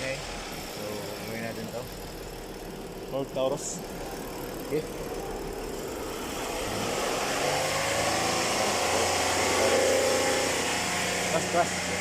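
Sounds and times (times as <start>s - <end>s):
noisy timing chain: 0.0s - 9.4s
car engine running: 0.0s - 12.0s.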